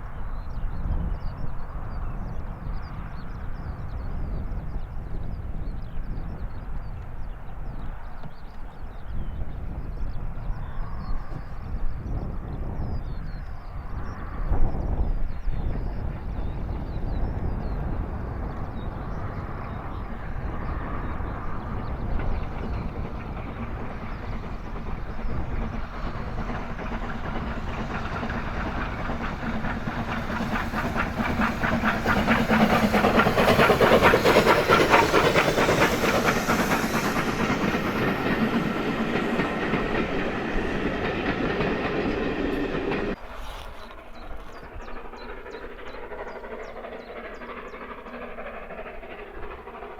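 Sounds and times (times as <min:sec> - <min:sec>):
steam locomotive passing: 0:00.0 - 0:49.9
wheels over rail joints: 0:22.1 - 0:49.9.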